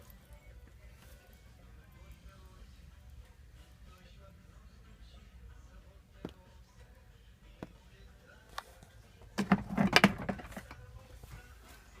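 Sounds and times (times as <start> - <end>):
knocks and rattles: 9.4 - 10.8.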